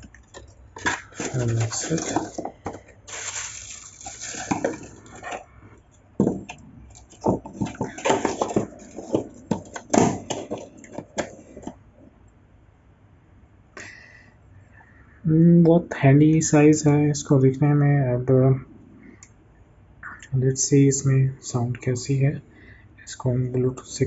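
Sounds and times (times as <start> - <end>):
packaging rustling: 0.0 - 5.5, 6.2 - 11.8.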